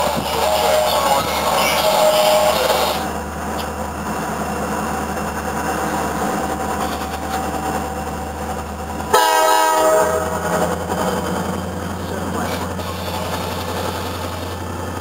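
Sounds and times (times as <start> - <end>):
steady low rumble: 0.0 - 9.2
train air horn blast: 9.1 - 10.6.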